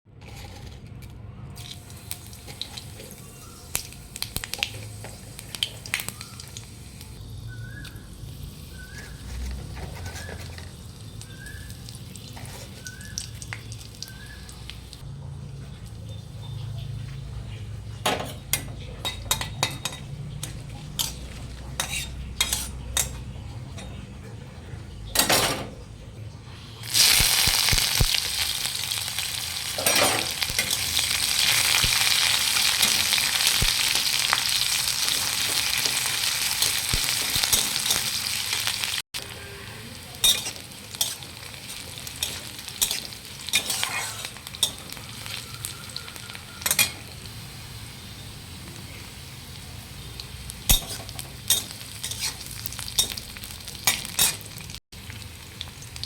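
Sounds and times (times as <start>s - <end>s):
food sizzling in hot oil: 1.6s - 15.1s, 18.3s - 23.3s, 26.6s - 56.0s
utensil clinking in a pan: 18.0s - 24.0s, 29.8s - 31.0s, 40.2s - 45.4s, 46.5s - 47.1s, 50.7s - 54.6s.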